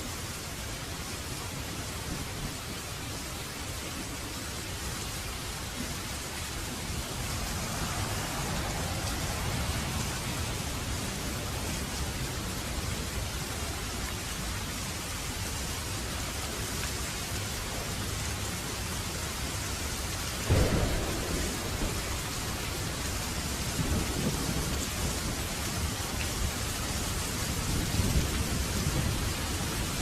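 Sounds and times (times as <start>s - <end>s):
rain falling: 0.0s - 30.0s
thunder rolling: 20.4s - 25.9s.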